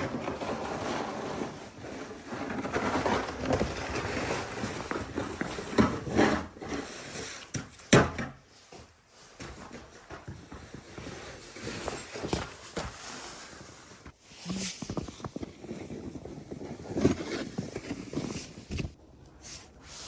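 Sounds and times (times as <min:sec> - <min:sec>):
snow shovel scraping snow: 0:00.0 - 0:07.4, 0:10.8 - 0:18.6.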